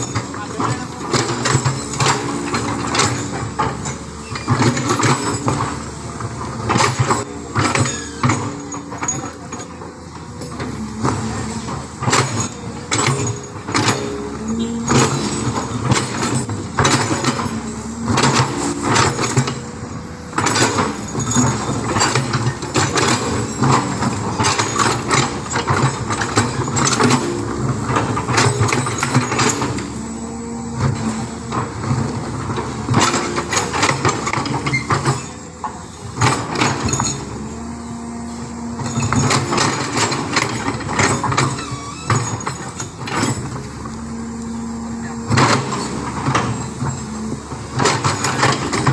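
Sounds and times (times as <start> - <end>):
sharp knocks and clatters: 0.0 - 30.2
heavy diesel engine running: 0.0 - 48.9.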